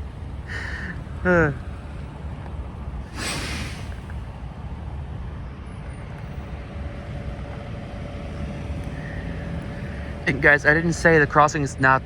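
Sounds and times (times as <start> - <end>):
idling vehicle engines rumble: 0.0 - 12.0
hiss of released air: 3.1 - 4.2.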